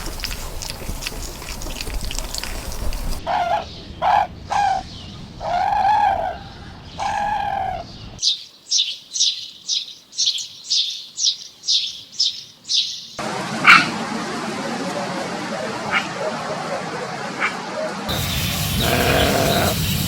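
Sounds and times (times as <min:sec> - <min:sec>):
drawn-out animal calls: 0:00.0 - 0:04.8, 0:18.8 - 0:19.8
small bird chirping: 0:06.9 - 0:13.2.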